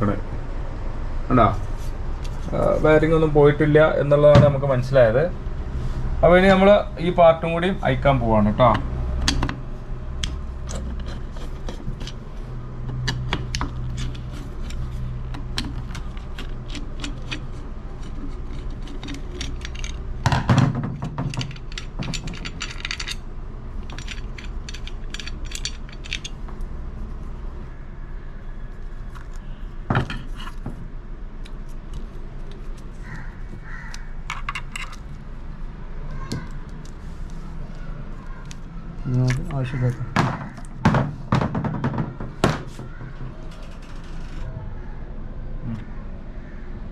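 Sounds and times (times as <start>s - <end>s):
small metallic clicks: 21.3s - 23.2s, 23.8s - 26.4s.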